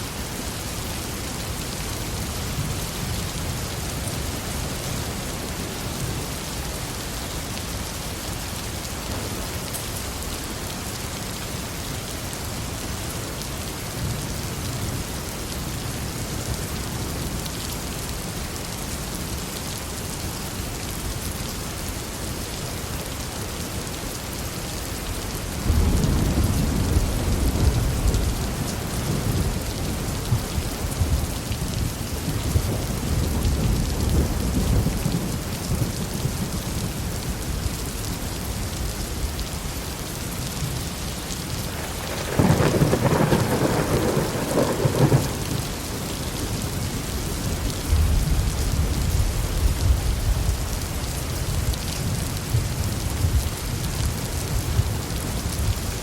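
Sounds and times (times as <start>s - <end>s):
heavy rain: 0.0s - 56.0s
loud thunder peal: 41.8s - 45.5s
thunder rumbling: 41.8s - 45.8s.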